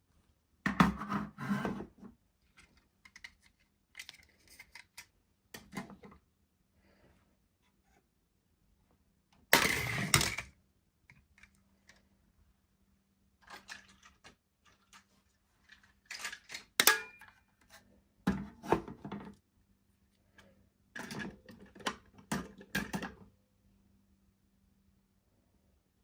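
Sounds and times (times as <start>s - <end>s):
plastic toys being handled: 2.3s - 6.2s, 9.6s - 12.4s, 13.3s - 17.9s.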